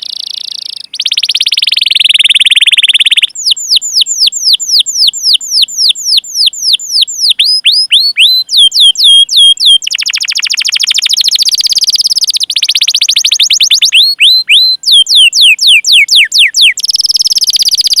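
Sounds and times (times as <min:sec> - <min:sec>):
canary whistle notes: 0:00.0 - 0:18.0
canary rolling trills: 0:11.4 - 0:17.2.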